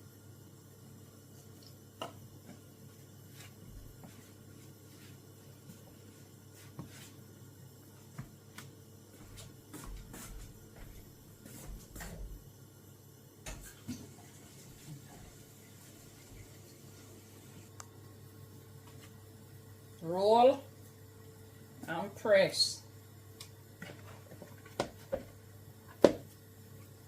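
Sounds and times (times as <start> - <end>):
hands kneading dough: 2.0 - 7.2.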